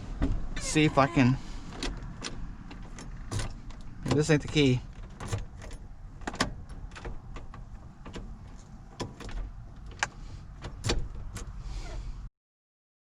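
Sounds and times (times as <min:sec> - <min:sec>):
keys clicking in ignition: 0:01.7 - 0:11.6.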